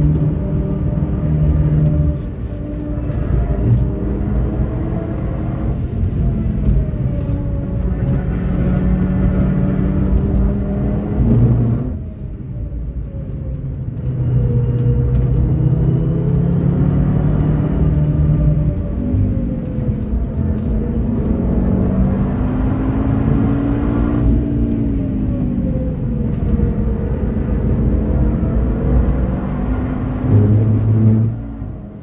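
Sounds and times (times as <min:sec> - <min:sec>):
car engine pulling hard: 0:14.0 - 0:32.0.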